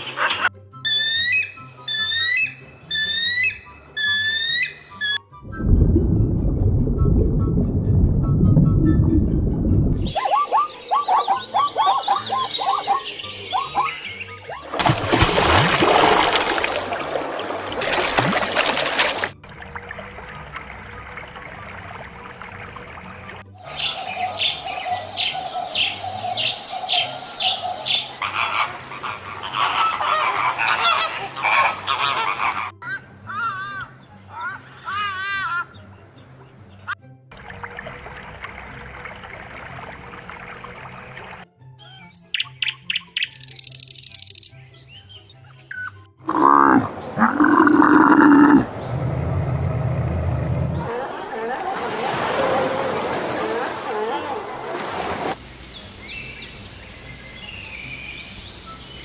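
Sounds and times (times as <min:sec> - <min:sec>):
background music: 0:00.1 - 0:48.6
waterfowl honking: 0:25.2 - 0:32.8
large animal calling: 0:46.2 - 0:48.7.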